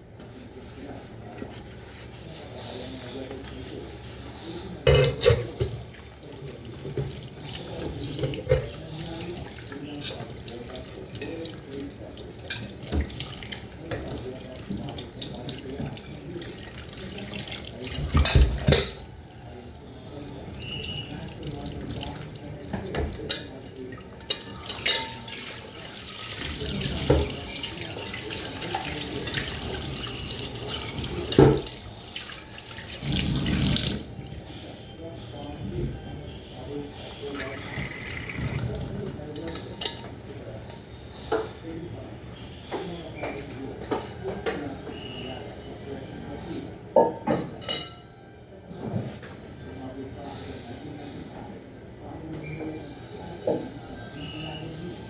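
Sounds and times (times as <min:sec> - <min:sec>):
dishes clinking and knocking: 0:04.9 - 0:05.9, 0:18.0 - 0:19.1, 0:24.2 - 0:25.6, 0:30.9 - 0:31.8
tap water running into sink: 0:25.0 - 0:34.3, 0:37.4 - 0:38.9.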